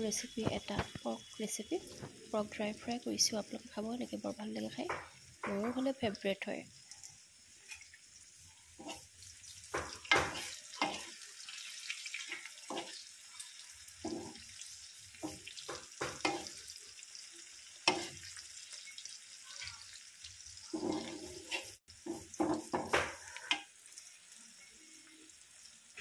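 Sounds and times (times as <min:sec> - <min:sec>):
food sizzling in a pan: 0:00.0 - 0:26.0
metal spoon scraping a pan: 0:08.7 - 0:16.7, 0:17.8 - 0:20.0, 0:20.7 - 0:23.7.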